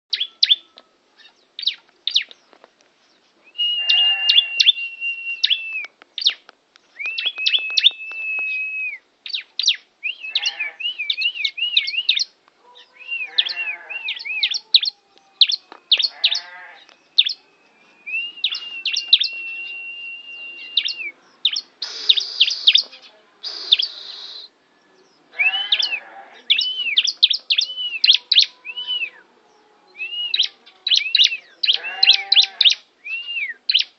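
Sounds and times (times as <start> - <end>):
bird singing: 0.1 - 33.9
harsh raspy bird notes: 3.6 - 5.7, 9.6 - 17.4, 18.1 - 24.6, 25.3 - 29.2, 30.0 - 32.8.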